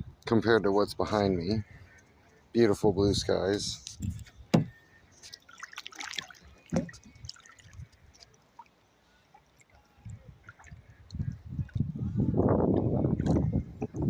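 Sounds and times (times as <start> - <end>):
sharp knocks: 4.5 - 4.7
paddle splashing lightly: 4.6 - 11.9
water dripping off paddle: 5.2 - 11.8.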